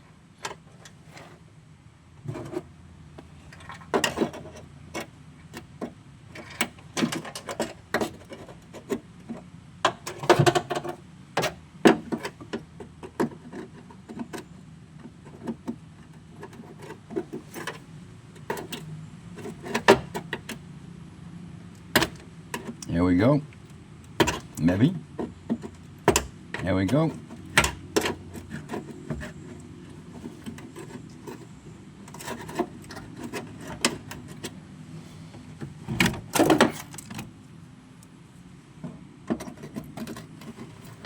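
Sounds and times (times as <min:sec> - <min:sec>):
metallic knocks and scrapes: 0:02.2 - 0:02.7, 0:03.4 - 0:14.5, 0:15.1 - 0:20.6, 0:24.1 - 0:37.3, 0:38.8 - 0:41.0.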